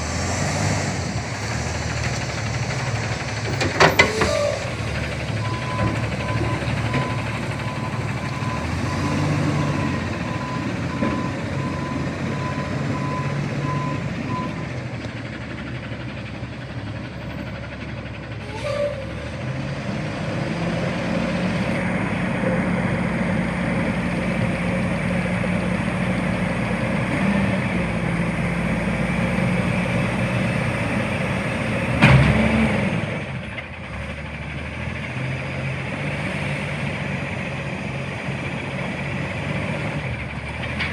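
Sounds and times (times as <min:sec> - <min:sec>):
garbage truck engine running: 0:00.0 - 0:40.9
reversing alarm beeping: 0:03.6 - 0:14.7.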